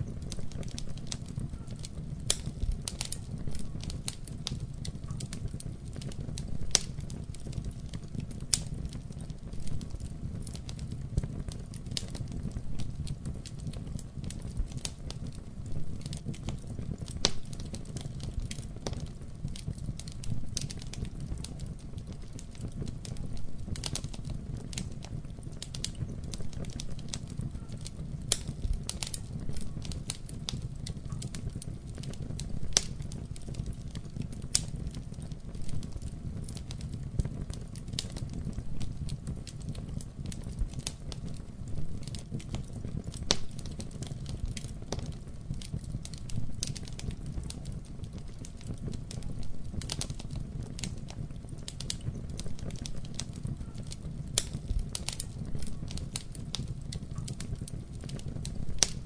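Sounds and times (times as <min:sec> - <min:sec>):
wood fire crackling in fireplace: 0:00.0 - 0:59.0.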